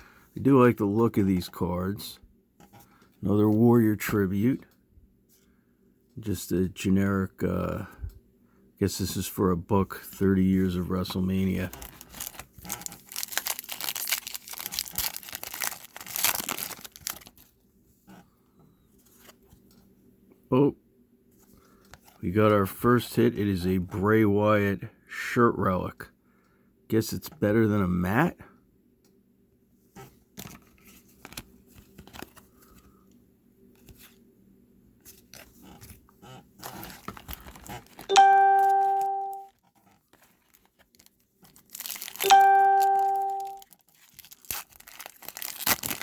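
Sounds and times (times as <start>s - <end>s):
soft handling sounds: 8.9s - 20.4s, 21.3s - 22.5s, 29.7s - 46.0s
wrapper tearing and crinkling: 11.4s - 17.5s, 36.6s - 38.1s, 39.7s - 46.0s.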